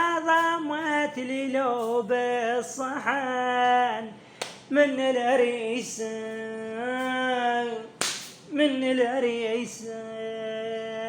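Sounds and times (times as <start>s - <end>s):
sharp crack: 8.0s - 8.4s.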